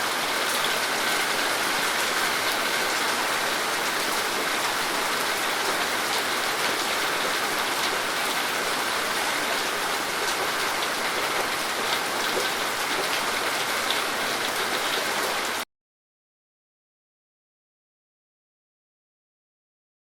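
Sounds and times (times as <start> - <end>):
steady rain falling: 0.0 - 15.6.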